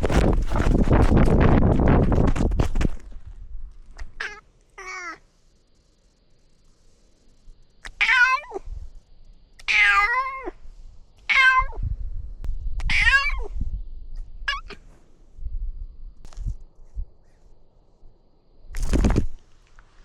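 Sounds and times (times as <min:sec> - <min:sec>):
cat meowing: 0:04.0 - 0:05.2, 0:07.8 - 0:08.6, 0:09.6 - 0:10.6, 0:11.3 - 0:11.8, 0:12.8 - 0:13.6, 0:14.4 - 0:14.8.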